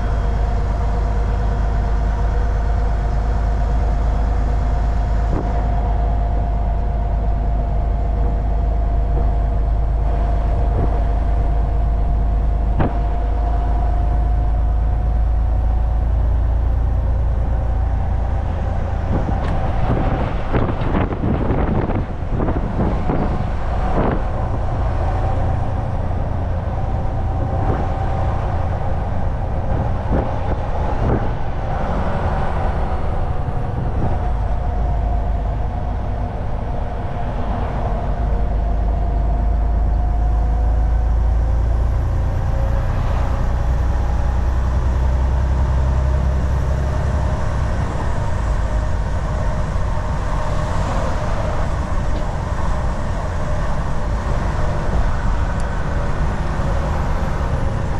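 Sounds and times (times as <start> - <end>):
truck engine drone: 0.0 - 57.9
tyre and road noise: 0.0 - 57.9.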